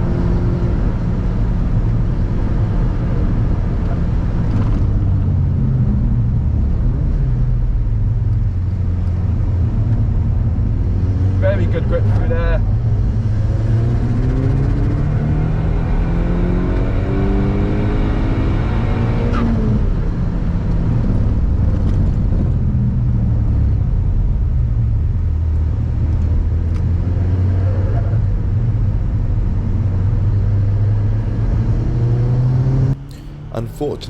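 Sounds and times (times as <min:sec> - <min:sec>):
car engine accelerating: 0:00.0 - 0:34.0
road noise: 0:00.0 - 0:34.0.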